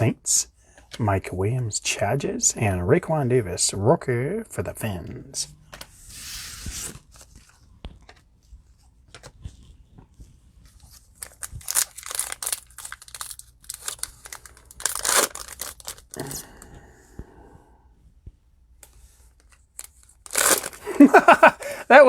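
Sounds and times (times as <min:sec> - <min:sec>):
card pack wrapper tearing: 0:10.9 - 0:16.5, 0:19.7 - 0:21.4.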